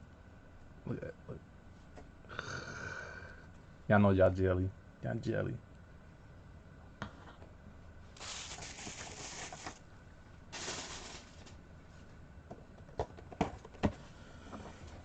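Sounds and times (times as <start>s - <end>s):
plastic packaging crinkling: 8.2s - 9.8s, 10.5s - 11.6s.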